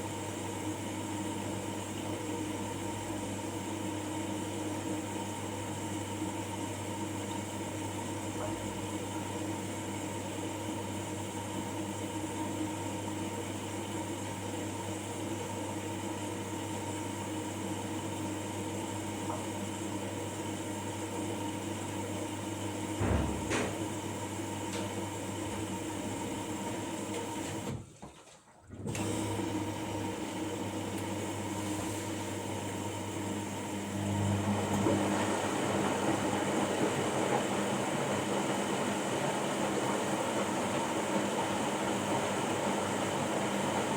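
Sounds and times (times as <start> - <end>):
washing machine motor hum: 0.0 - 43.9
brief thump: 23.0 - 23.8.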